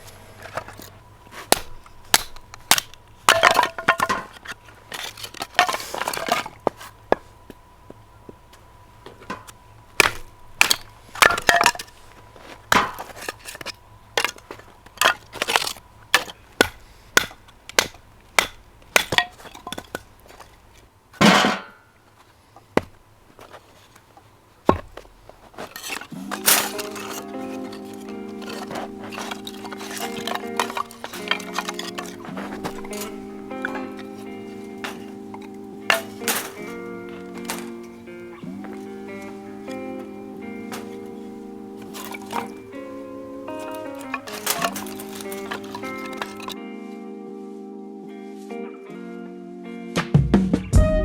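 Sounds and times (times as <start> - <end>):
firewood being chopped: 0.4 - 8.4, 9.1 - 21.8, 22.6 - 37.9, 40.0 - 41.2, 41.8 - 42.9, 43.5 - 46.6
wood splintering crack: 1.5 - 6.6, 9.3 - 20.8, 24.7 - 36.8, 43.6 - 46.6.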